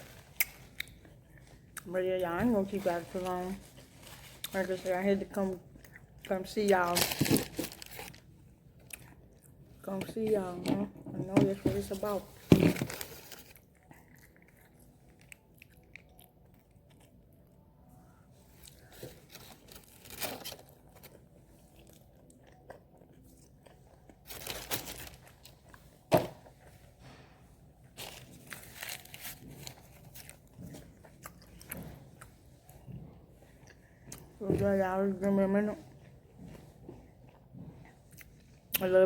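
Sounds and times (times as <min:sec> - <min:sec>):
person chewing crunchy food: 0:07.2 - 0:09.9, 0:12.6 - 0:17.9, 0:20.7 - 0:24.5, 0:28.0 - 0:34.4.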